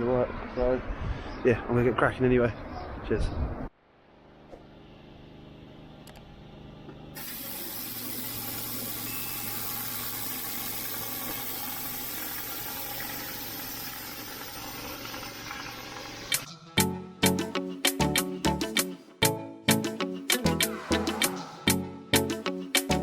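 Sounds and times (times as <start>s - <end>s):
pressure washer engine running: 7.2s - 12.1s
high-pressure water spraying: 7.2s - 16.5s.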